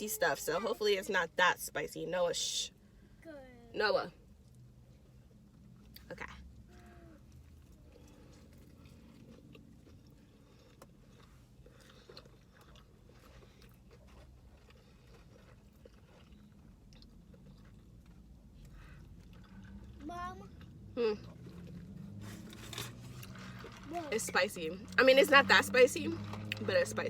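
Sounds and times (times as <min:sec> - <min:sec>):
low steady hum: 0:00.0 - 0:27.0
chewing crunchy food: 0:04.4 - 0:24.2, 0:26.2 - 0:26.7.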